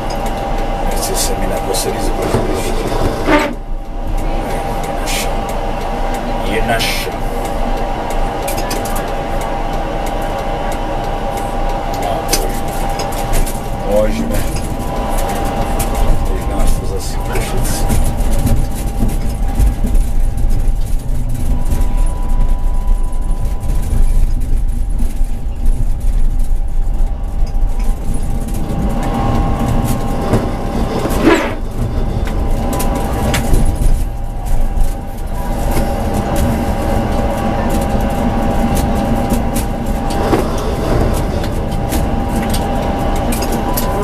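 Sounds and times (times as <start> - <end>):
tram rumbling along track: 0.0 - 44.0
tram whine: 0.0 - 44.0.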